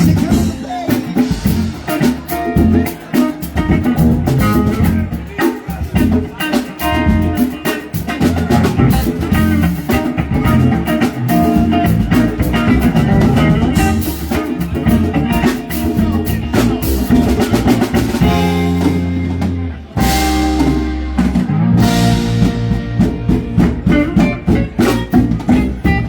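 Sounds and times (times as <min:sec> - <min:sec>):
bass: 0:00.0 - 0:26.0
drum kit beat: 0:00.0 - 0:26.0
electric guitar: 0:00.0 - 0:26.0.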